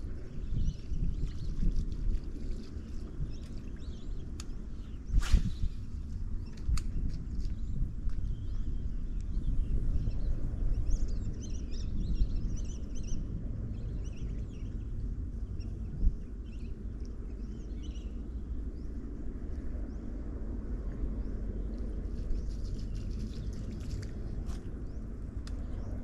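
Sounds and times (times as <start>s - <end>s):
wind rumble on microphone: 0.0s - 26.0s
birds chirping: 15.6s - 19.0s.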